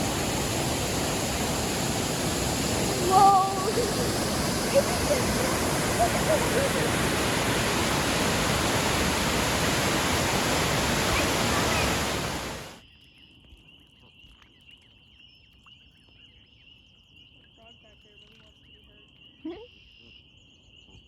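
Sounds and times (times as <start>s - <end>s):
waterfall rushing: 0.0s - 12.8s.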